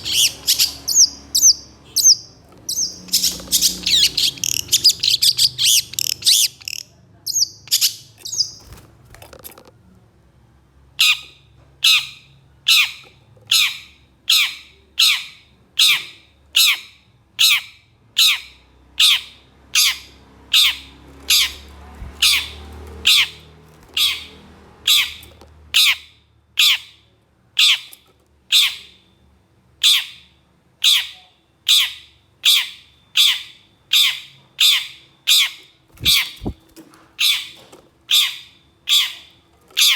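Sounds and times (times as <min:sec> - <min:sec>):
bird harsh rasping calls: 0:00.0 - 0:08.7, 0:11.0 - 0:27.0, 0:29.8 - 0:39.9.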